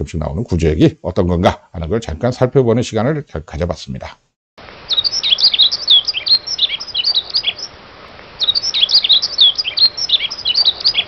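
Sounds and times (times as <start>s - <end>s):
faint steady hiss: 0.0s - 11.0s
songbirds chirping: 4.6s - 11.0s.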